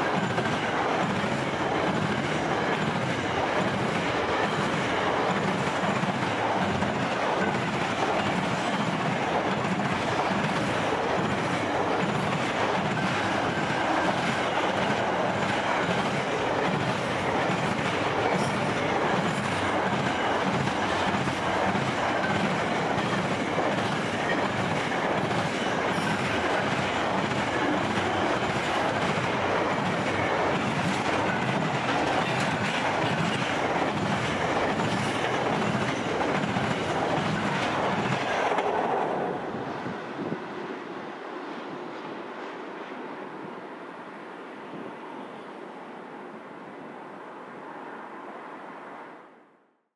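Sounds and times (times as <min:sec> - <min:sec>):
steel wheels clacking on rail: 0:00.0 - 0:39.6.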